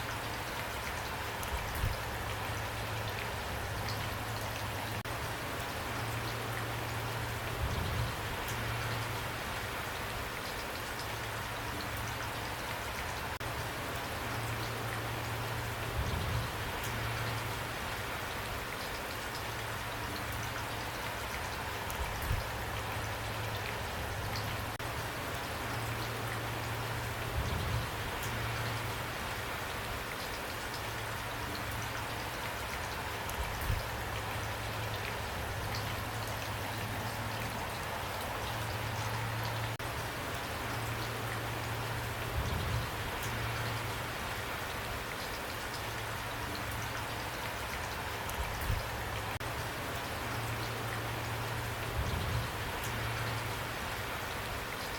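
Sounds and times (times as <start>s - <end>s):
rain on a roof: 0.0s - 54.9s.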